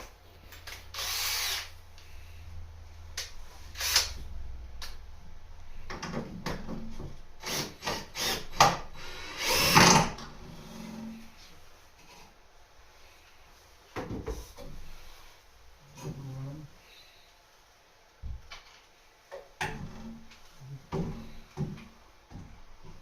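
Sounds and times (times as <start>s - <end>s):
power drill running: 0.9s - 1.8s, 3.8s - 4.2s, 7.4s - 10.2s.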